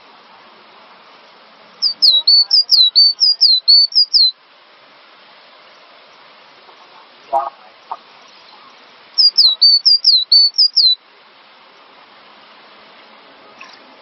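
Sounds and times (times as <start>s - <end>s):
steady hiss: 0.0s - 14.0s
bird singing whistled notes: 1.8s - 4.4s, 8.5s - 11.0s.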